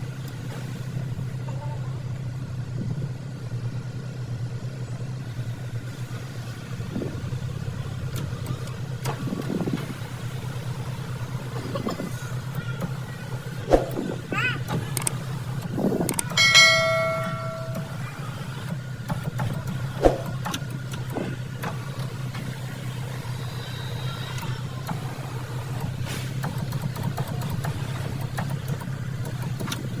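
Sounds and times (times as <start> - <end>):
car engine idling: 0.0 - 30.0
short ringing chime: 16.4 - 18.2.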